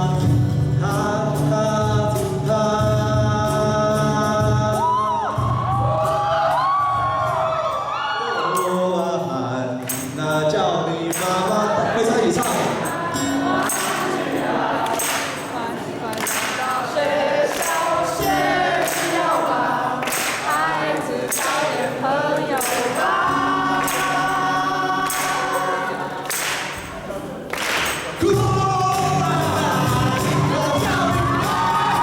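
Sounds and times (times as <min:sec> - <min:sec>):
group of voices singing: 0:09.8 - 0:32.0
band accompaniment with steady beat: 0:12.4 - 0:31.9.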